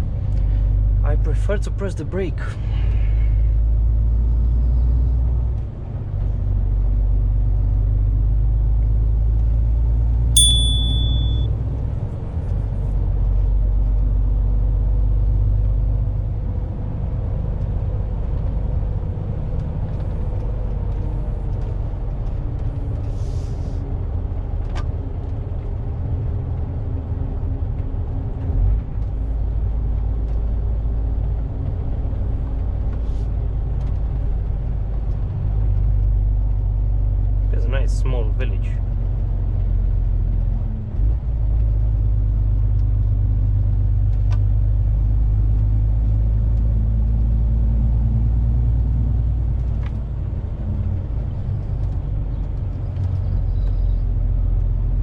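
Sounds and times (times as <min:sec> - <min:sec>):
short high beep: 0:10.4 - 0:11.5
lorry engine and road noise: 0:12.1 - 0:55.0.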